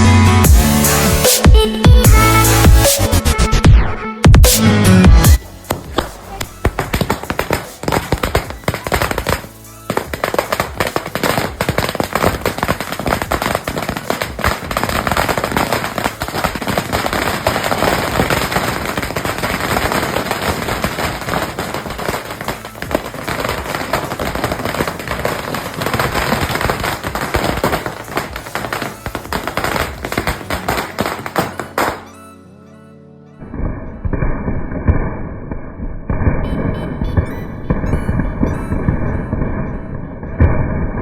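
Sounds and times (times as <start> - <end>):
firecracker string bangs: 4.3 - 32.1.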